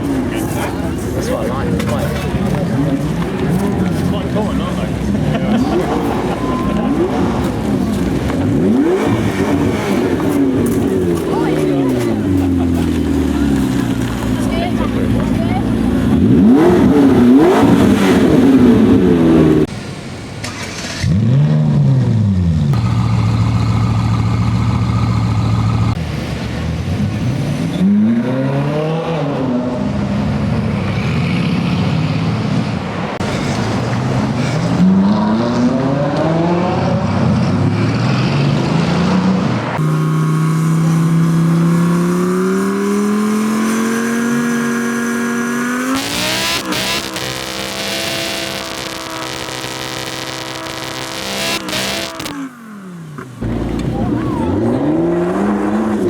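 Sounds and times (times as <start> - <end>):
car accelerating: 0.0 - 20.0, 20.6 - 56.0
car engine idling: 0.0 - 26.7, 39.7 - 56.0
car engines revving: 0.0 - 56.0.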